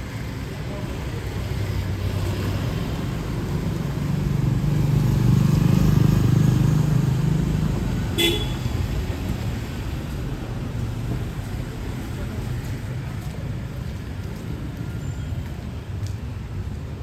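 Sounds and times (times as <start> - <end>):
vehicle engine passing: 2.0 - 8.2.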